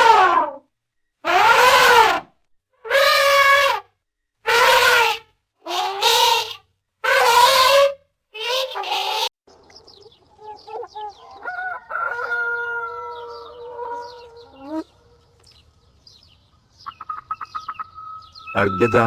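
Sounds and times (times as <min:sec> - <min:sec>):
cartoon chicken squawks: 0:00.0 - 0:00.6, 0:01.2 - 0:03.9, 0:04.5 - 0:09.3, 0:16.9 - 0:19.0
chicken clucks: 0:09.6 - 0:15.0
long crowing call: 0:10.5 - 0:15.2.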